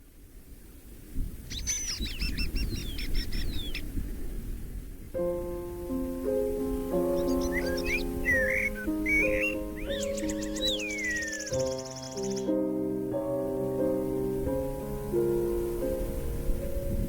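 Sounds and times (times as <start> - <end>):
songbird singing: 1.4 - 4.3, 5.2 - 17.0
soft sustained music: 5.1 - 17.0.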